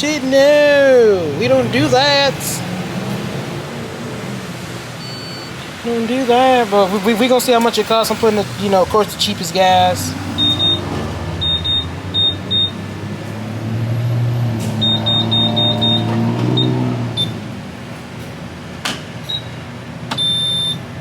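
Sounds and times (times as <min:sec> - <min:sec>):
keypad beeps: 0:05.0 - 0:05.5, 0:10.4 - 0:10.8, 0:11.4 - 0:12.8, 0:14.8 - 0:17.4, 0:20.1 - 0:20.8.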